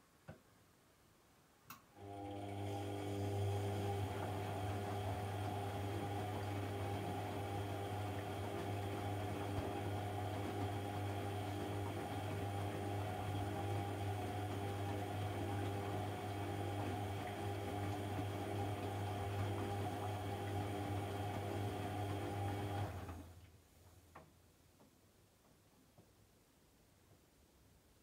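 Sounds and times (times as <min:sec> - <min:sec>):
washing machine humming: 0:02.0 - 0:23.5.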